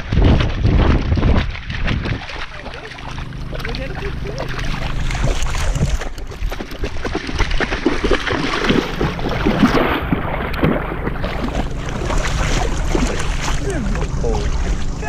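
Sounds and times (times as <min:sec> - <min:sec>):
dog splashing in water: 0:00.0 - 0:15.0
wind on microphone: 0:00.0 - 0:15.0.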